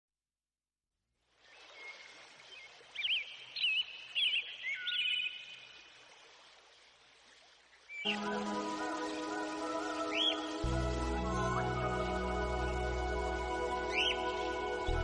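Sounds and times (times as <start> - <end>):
bird chirping: 1.5 - 5.9, 8.9 - 10.7, 13.8 - 15.0
music: 8.1 - 15.0.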